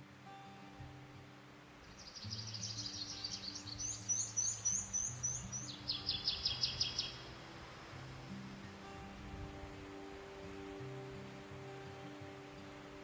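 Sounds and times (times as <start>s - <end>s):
soft background music: 0.0s - 13.0s
songbird trilling: 1.9s - 7.3s.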